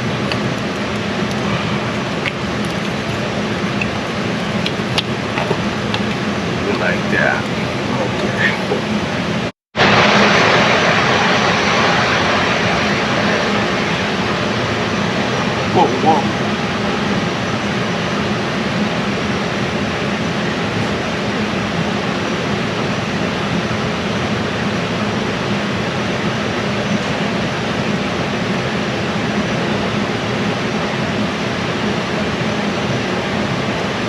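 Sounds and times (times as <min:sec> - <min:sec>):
rushing air noise: 0:00.0 - 0:19.6
low hum: 0:00.0 - 0:34.0.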